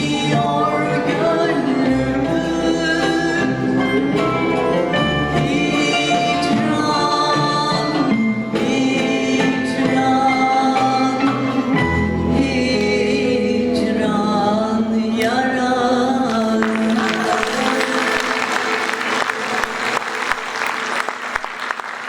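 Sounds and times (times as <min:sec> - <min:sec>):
song with instrumental accompaniment: 0:00.0 - 0:22.0
audience applause: 0:16.3 - 0:22.0.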